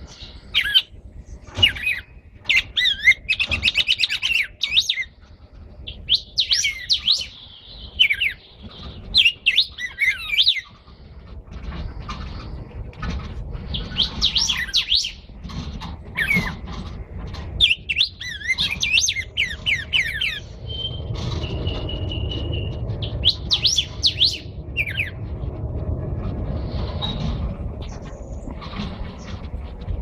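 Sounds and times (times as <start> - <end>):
songbirds whistling: 0.0 - 11.1, 13.7 - 15.3, 16.1 - 16.7, 17.6 - 25.3, 26.7 - 29.5
low steady rumble: 4.4 - 30.0.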